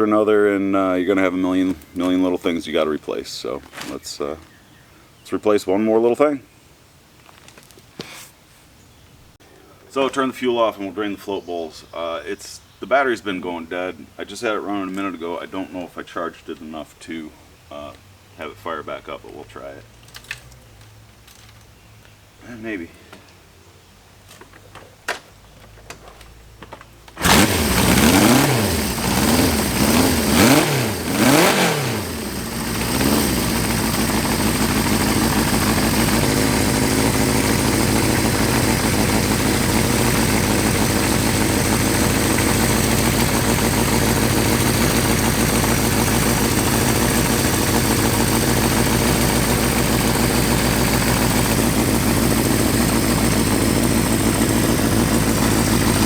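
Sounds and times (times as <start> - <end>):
motorcycle engine revving and idling: 27.2 - 56.0.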